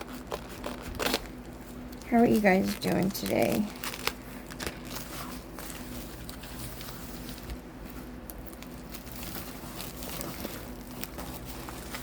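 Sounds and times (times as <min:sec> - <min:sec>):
low steady hum: 0:00.0 - 0:12.0
packaging rustling: 0:00.0 - 0:12.0.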